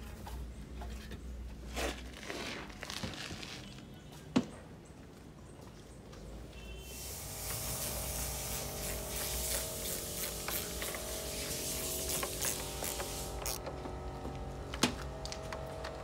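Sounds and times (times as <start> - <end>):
compressed air hissing: 6.8 - 13.6.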